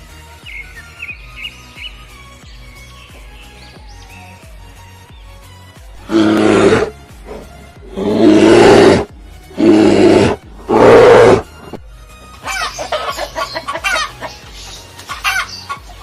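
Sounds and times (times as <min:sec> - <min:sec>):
background music: 0:00.0 - 0:16.0
large animal roaring: 0:06.0 - 0:11.5.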